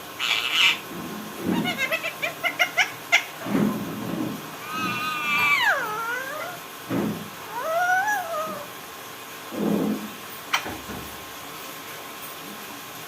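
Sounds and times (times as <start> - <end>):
parrot calling: 0.2 - 3.5, 4.6 - 6.7, 7.4 - 8.7.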